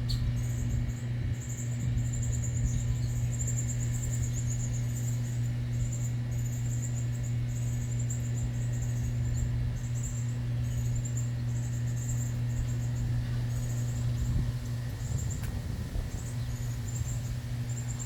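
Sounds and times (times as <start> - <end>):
steady low hum: 0.0 - 18.0
birds chirping: 7.5 - 18.0.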